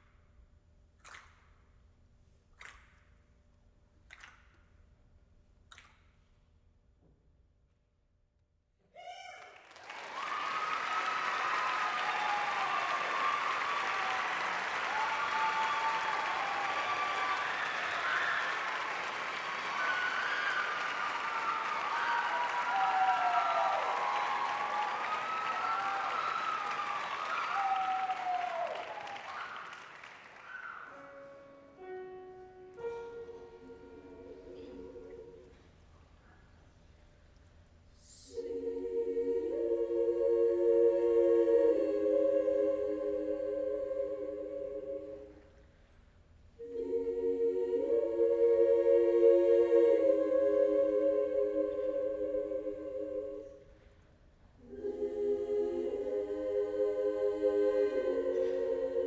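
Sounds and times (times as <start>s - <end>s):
people cheering: 9.0s - 31.4s
audience applauding: 9.4s - 31.4s.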